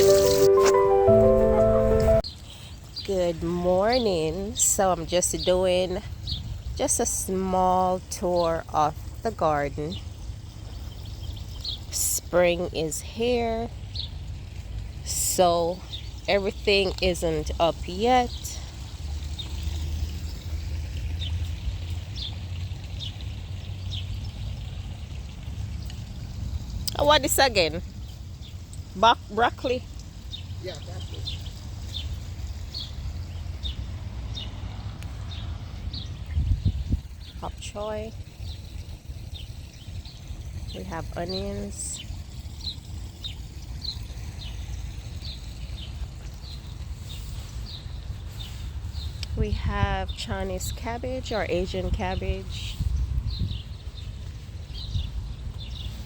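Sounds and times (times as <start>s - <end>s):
bird chirping: 0.0s - 2.2s.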